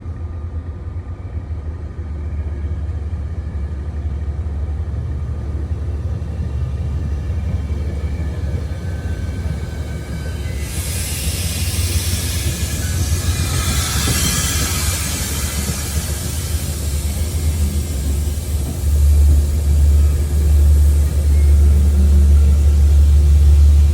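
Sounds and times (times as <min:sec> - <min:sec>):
train rumbling: 0:00.0 - 0:23.9
faint rising tones: 0:04.9 - 0:18.3.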